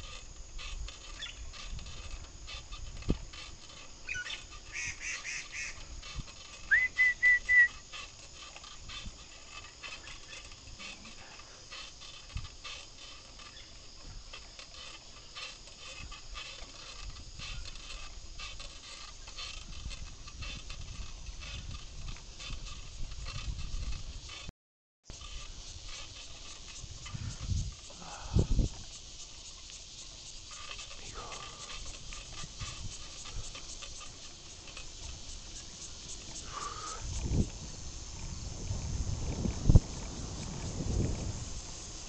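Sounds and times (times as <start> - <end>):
birds calling: 4.0 - 5.9
travel noise hiss: 25.1 - 42.0.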